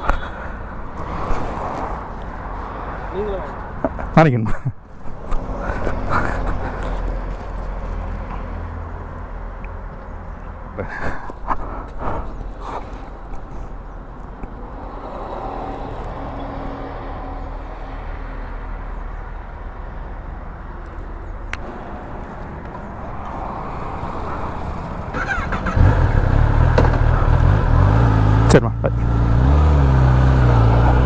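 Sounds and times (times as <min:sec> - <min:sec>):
motorcycle engine revving: 0:25.1 - 0:31.0.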